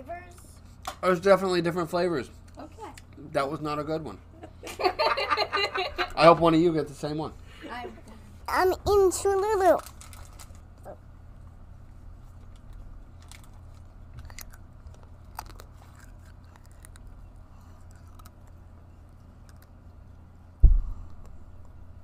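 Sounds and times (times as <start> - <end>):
steady low hum: 0.0 - 22.0
soft chewing: 10.7 - 20.6
loud dull thump: 20.6 - 21.2.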